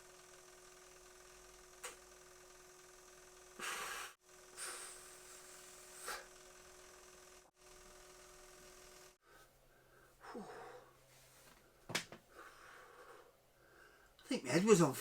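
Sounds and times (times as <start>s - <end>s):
faint hum: 0.0s - 15.0s
man breathing and sighing: 9.3s - 11.5s.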